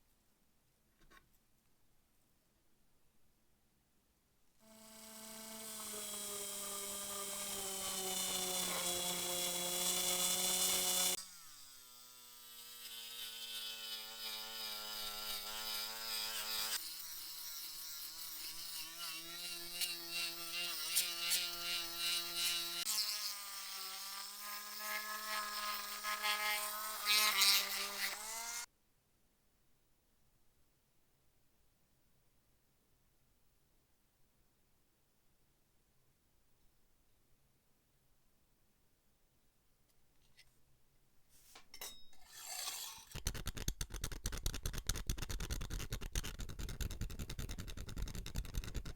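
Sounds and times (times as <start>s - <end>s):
rotary tool whining on metal: 4.7s - 28.7s, 41.8s - 43.2s.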